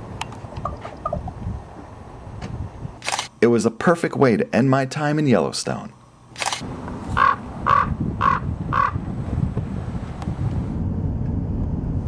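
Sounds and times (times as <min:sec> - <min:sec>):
steady low rumble: 0:00.0 - 0:03.4, 0:06.1 - 0:12.0
raven croaking caws: 0:07.1 - 0:09.0.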